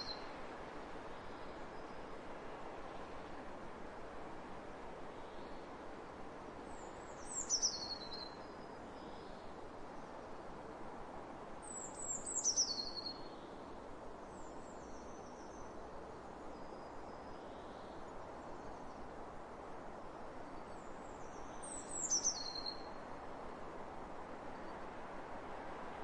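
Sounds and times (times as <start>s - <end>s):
songbird singing: 0.0s - 0.3s, 6.7s - 9.5s, 11.6s - 13.6s, 20.6s - 23.0s
open-air ambience hiss: 0.0s - 26.0s.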